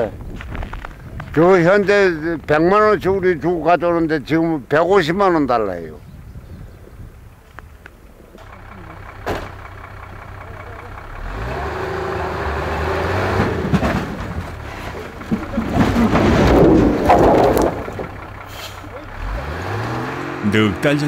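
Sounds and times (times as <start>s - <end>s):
truck engine running: 7.2s - 21.0s.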